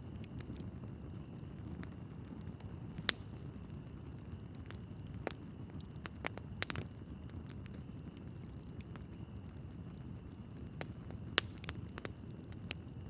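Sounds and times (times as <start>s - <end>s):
fire crackling and popping: 0.0s - 13.0s
low rumble of flames: 0.0s - 13.0s.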